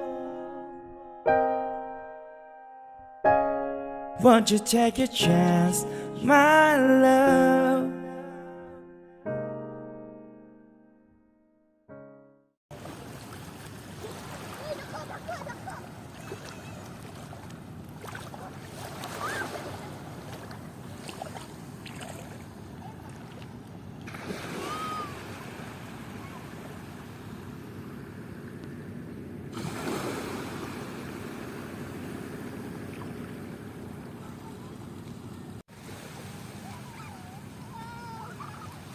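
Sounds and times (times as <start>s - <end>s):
faint bird calls: 36.6s - 38.9s.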